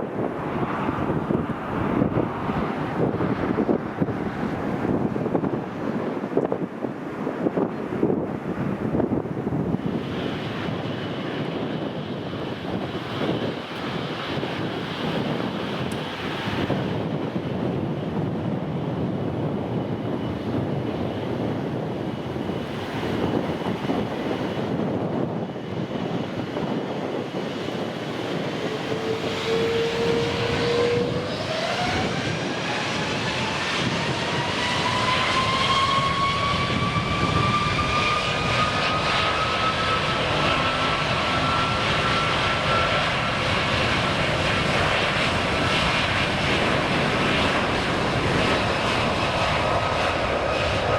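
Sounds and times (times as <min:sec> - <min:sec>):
jet engines rushing: 0:00.0 - 0:50.9
turbine whine rising in pitch: 0:27.5 - 0:50.9.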